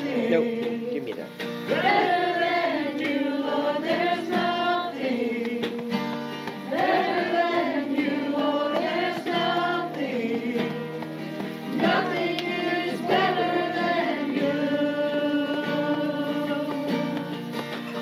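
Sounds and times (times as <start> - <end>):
congregation singing praise song: 0.0 - 18.0
instrumental accompaniment: 0.0 - 18.0.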